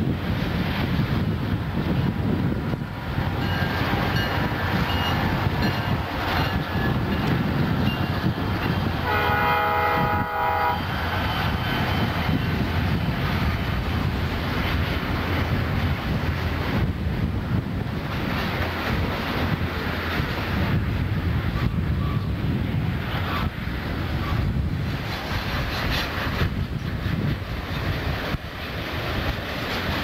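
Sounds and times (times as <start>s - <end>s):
freight train rumbling on rails: 0.0s - 30.0s
train horn: 9.0s - 11.0s.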